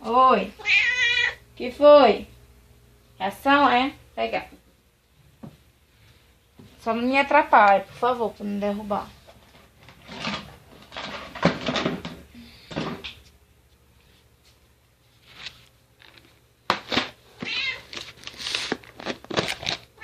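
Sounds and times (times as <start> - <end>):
cat meowing: 0.6 - 1.4, 17.4 - 17.9
kitchen knocks and rattles: 9.9 - 13.1.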